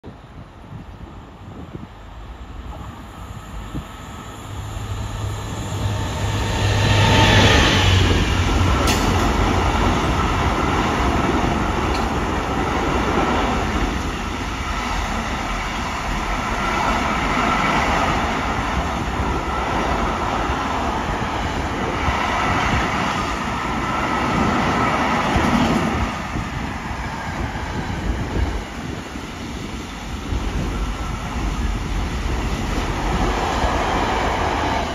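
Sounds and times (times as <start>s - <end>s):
train wheels clattering on rails: 5.9s - 19.1s, 21.2s - 26.7s.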